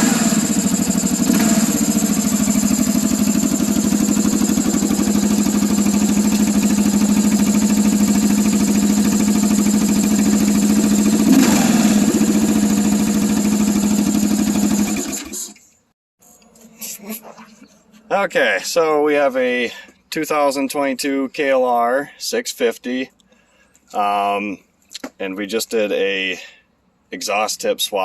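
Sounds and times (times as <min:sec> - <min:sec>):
motorcycle engine idling: 0:00.0 - 0:15.5.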